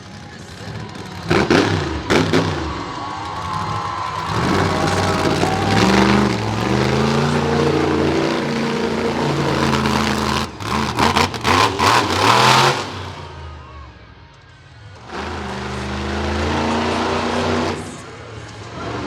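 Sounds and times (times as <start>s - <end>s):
truck engine revving: 0.0s - 14.1s, 14.7s - 19.0s.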